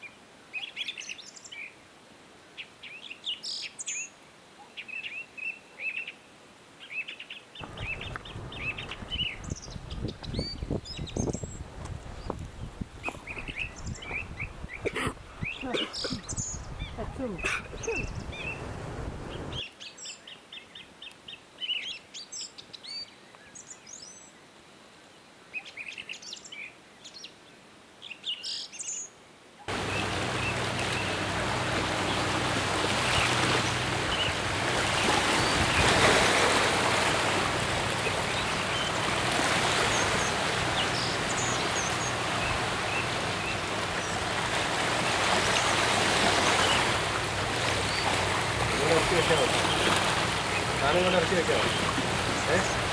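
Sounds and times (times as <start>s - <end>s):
small birds chirping: 7.6s - 20.8s, 29.7s - 44.4s, 45.4s - 52.9s
low hum: 29.7s - 46.0s
loud steady rushing noise: 29.7s - 52.9s.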